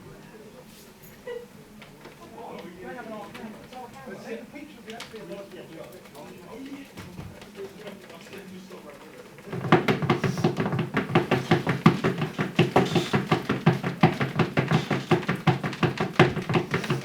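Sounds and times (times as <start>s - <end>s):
rapid irregular tapping and knocking: 4.9s - 17.0s.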